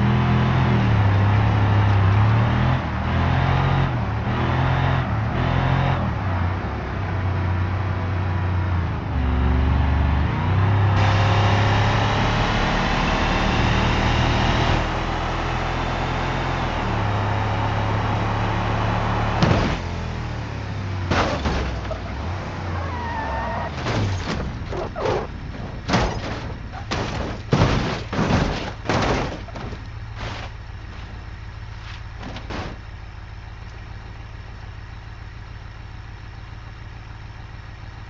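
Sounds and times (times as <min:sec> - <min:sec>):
sharp thumps: 0:23.7 - 0:31.1.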